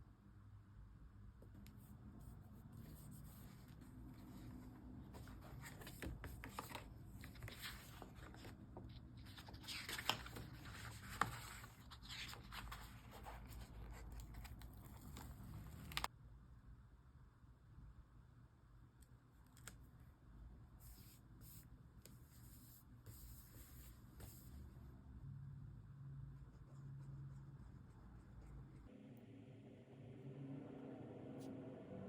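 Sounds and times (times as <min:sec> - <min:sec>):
paper scratching and rustling: 0:02.6 - 0:16.1.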